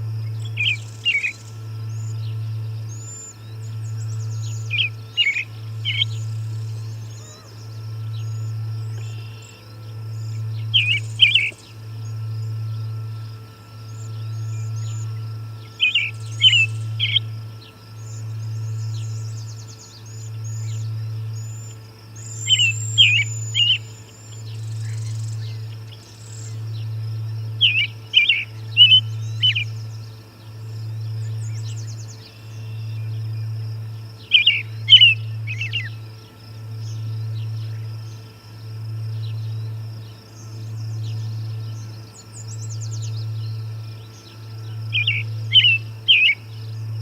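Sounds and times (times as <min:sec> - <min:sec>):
low hum: 0:00.0 - 0:47.0
songbird singing: 0:00.0 - 0:47.0.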